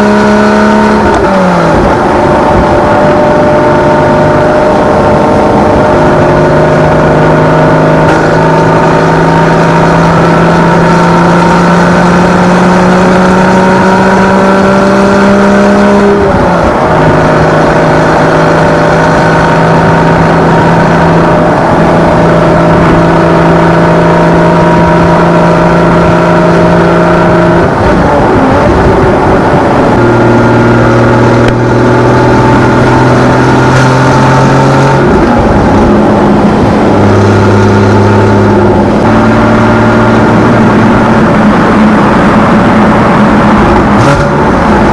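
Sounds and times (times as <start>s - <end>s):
car engine accelerating: 0.0s - 44.9s.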